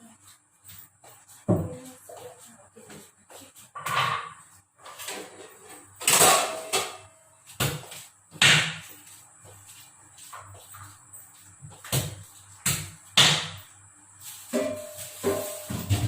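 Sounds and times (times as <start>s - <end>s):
kitchen knocks and clanks: 1.5s - 1.8s, 3.7s - 8.9s, 11.6s - 13.7s, 14.5s - 16.0s.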